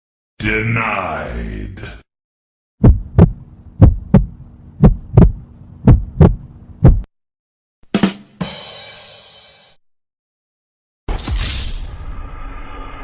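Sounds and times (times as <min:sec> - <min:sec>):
heartbeat thumps: 0:02.8 - 0:07.1.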